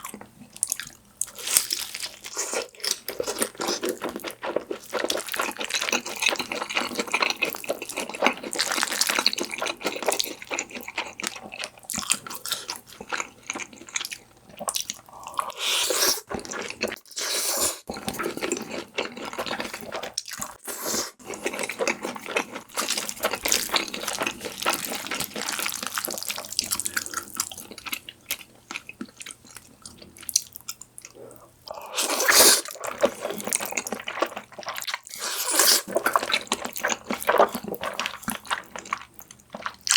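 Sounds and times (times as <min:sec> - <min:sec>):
chewing: 0:00.0 - 0:17.0, 0:17.9 - 0:39.9
slurping noodles: 0:15.1 - 0:18.6, 0:31.7 - 0:33.6.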